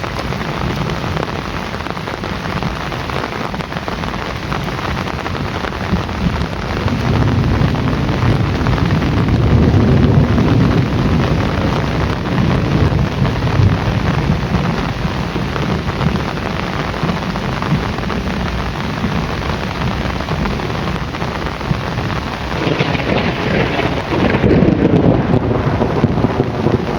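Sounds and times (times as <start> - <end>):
heavy rain falling: 0.0 - 26.9
low rumble of thunder: 5.8 - 26.9.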